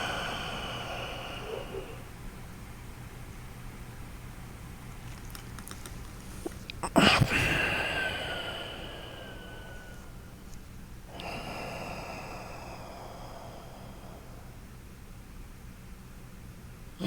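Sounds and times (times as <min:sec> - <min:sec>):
noisy nasal breathing: 0:00.0 - 0:02.2, 0:06.4 - 0:10.5, 0:11.1 - 0:14.8.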